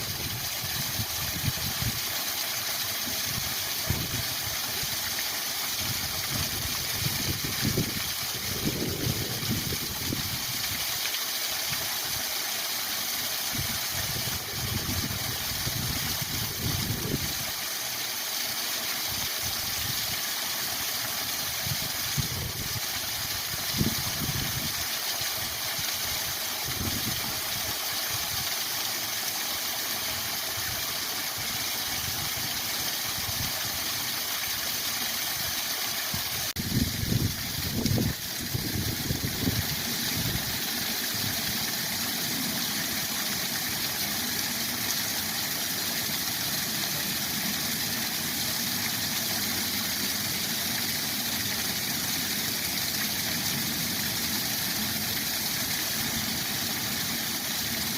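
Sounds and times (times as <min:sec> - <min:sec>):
waterfall rushing: 0:34.0 - 0:57.9.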